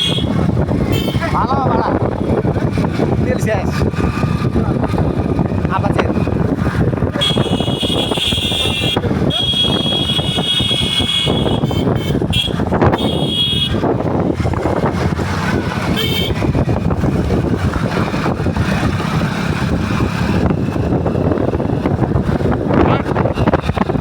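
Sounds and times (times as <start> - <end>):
horn honks: 0.0 - 1.4, 7.2 - 13.8, 15.9 - 16.6
motorcycle engine: 0.0 - 24.0
wind noise: 0.0 - 24.0.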